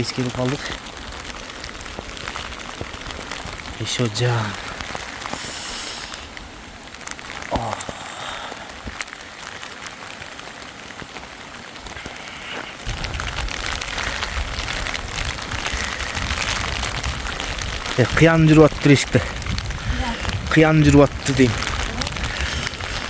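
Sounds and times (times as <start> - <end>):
heavy rain on a tent: 0.0 - 23.0.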